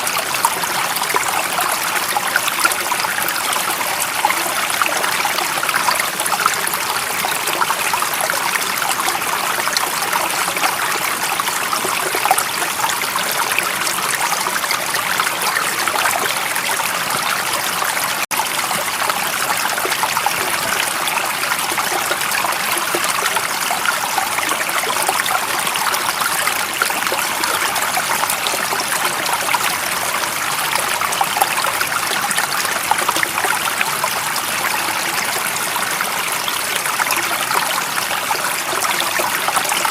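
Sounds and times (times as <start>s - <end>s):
running water flowing: 0.0s - 39.9s.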